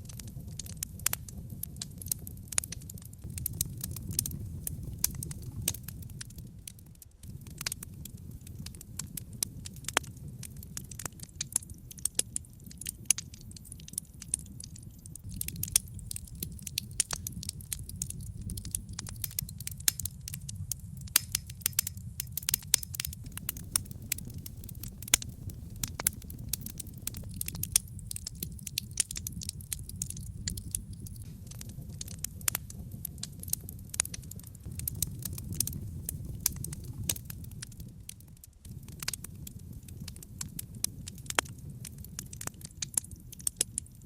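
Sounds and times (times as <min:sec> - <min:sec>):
logs crackling in fireplace: 0:00.0 - 0:44.0
low rumble of flames: 0:00.0 - 0:44.0
sharp pops: 0:21.1 - 0:31.4.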